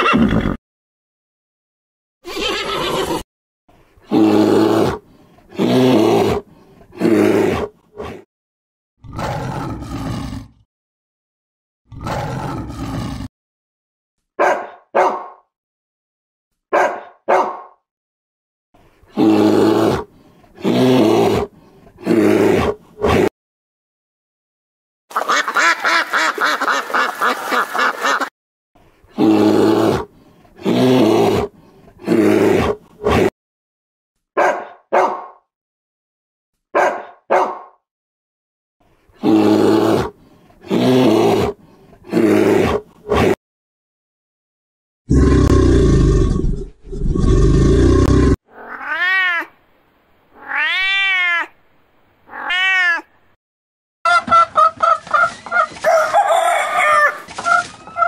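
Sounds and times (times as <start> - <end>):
animal calls: 54.1 - 58.0.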